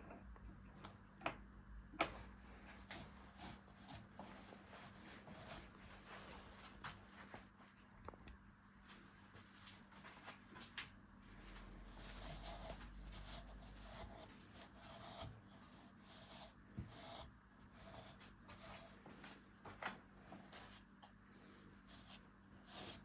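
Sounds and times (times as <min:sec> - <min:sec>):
rubbing and scraping on wood: 0:02.0 - 0:07.5, 0:11.4 - 0:20.9, 0:21.8 - 0:23.0.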